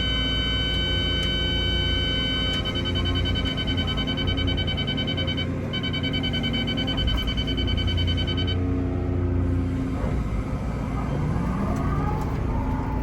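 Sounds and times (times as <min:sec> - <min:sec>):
high-pitched whine: 0:00.0 - 0:08.6
excavator engine drone: 0:00.0 - 0:13.0.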